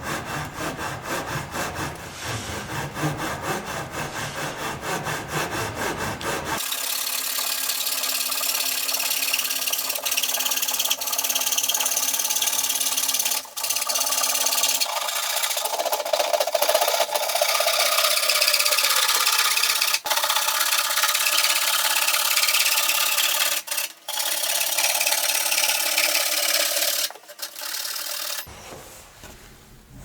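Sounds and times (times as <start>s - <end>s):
hand tool scraping wood: 0.0s - 6.6s, 21.3s - 29.2s.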